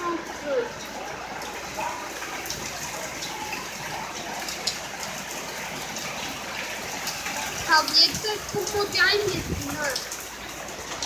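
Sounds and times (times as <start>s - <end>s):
heavy rain pouring: 0.0s - 11.0s
raindrops tapping a surface: 0.0s - 11.0s.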